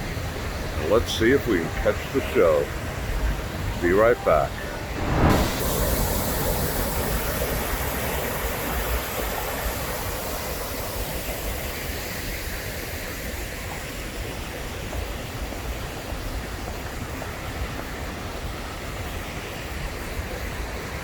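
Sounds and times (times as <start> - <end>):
waterfall rushing: 4.3 - 6.4.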